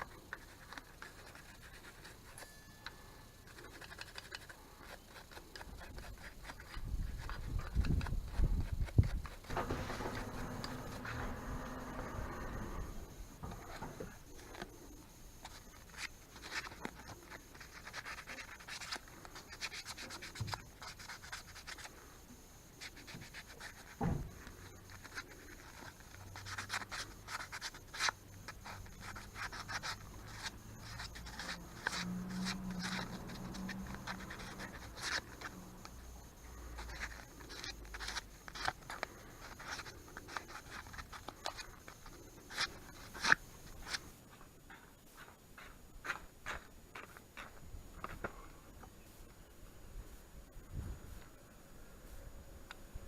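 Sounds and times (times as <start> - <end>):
rubbing and scraping on metal: 0.1 - 14.6.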